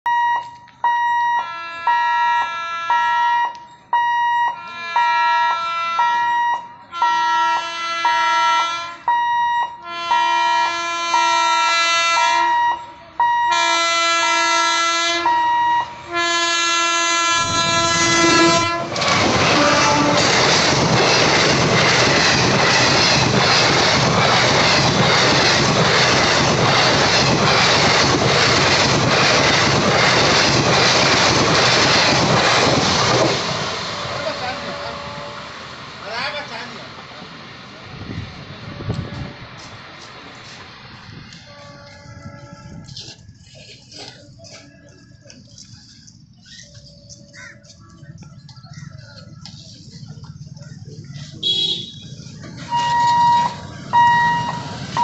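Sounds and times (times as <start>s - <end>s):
locomotive horn blasts: 0.1s - 20.4s, 34.5s - 35.6s, 41.4s - 43.1s, 51.4s - 55.0s
train passing at speed: 0.1s - 46.9s, 47.6s - 55.0s.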